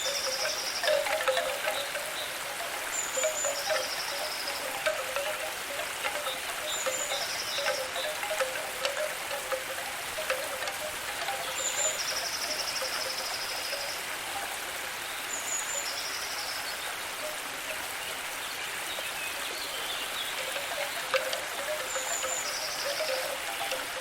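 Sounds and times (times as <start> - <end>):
pulsed trilling calls: 0.0 - 14.1, 20.4 - 24.0
water hiss: 0.0 - 24.0.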